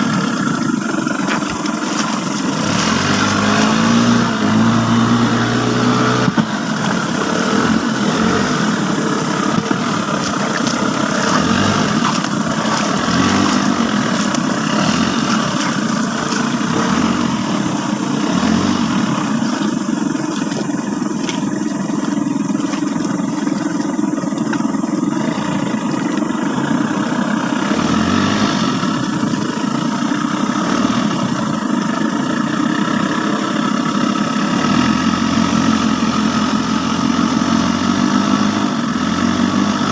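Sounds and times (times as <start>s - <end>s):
engine running loudly: 0.0s - 39.9s.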